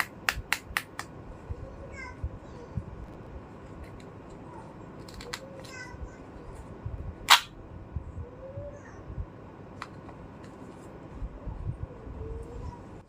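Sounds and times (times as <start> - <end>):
sharp loud plastic click: 7.3 - 7.5.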